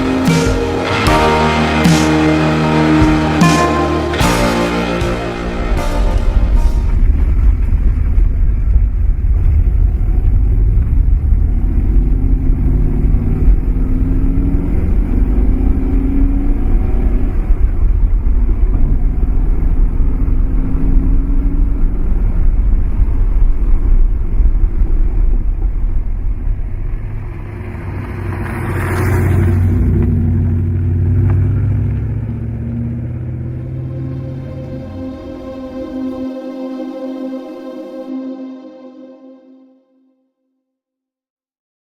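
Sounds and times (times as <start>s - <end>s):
car engine revving: 0.0s - 37.4s.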